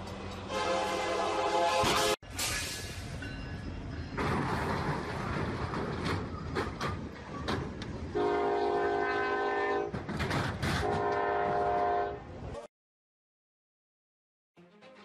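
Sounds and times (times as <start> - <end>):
diesel locomotive rumbling: 0.0 - 12.6
locomotive horn blasts: 0.5 - 2.2, 8.2 - 10.0, 10.8 - 12.3
trailer cracking and clattering: 4.2 - 8.0, 9.9 - 11.0.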